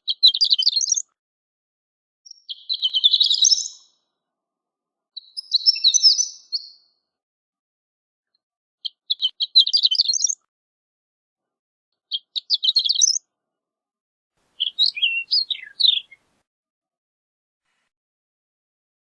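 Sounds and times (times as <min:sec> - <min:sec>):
bird singing high tinkling notes: 0:02.3 - 0:03.9, 0:05.2 - 0:06.8, 0:09.2 - 0:10.4, 0:12.3 - 0:13.2.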